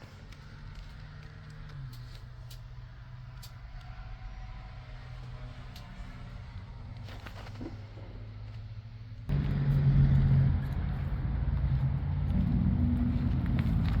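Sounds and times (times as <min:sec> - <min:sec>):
dump truck engine running: 0:04.2 - 0:14.0.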